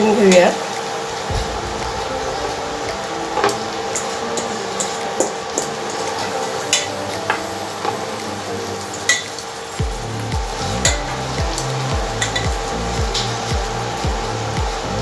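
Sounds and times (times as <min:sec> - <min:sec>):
spinach sizzling in a pot: 0:00.0 - 0:01.3, 0:02.1 - 0:15.0
low background music: 0:00.0 - 0:15.0.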